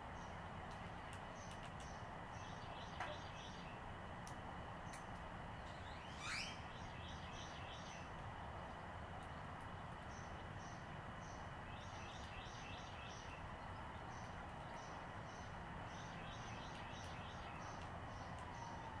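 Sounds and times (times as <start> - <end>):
steady background hiss: 0.0 - 19.0
short high bird chirps: 5.8 - 6.6
bird call sweeping downward: 5.9 - 6.7.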